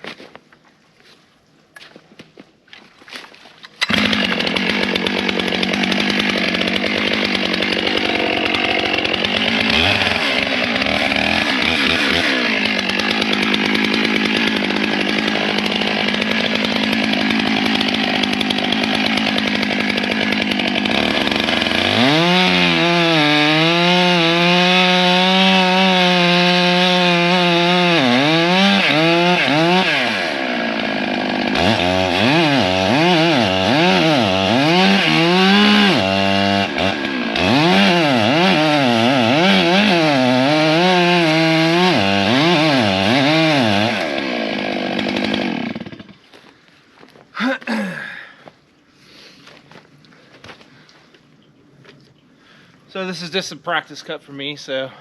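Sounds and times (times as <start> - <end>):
chainsaw cutting tree trunk: 3.7 - 46.4.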